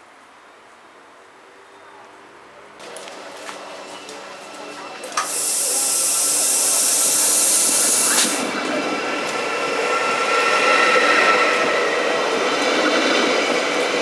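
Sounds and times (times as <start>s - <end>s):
train engine rumbling and whining: 2.8s - 14.0s
compressed air hissing: 5.2s - 8.6s.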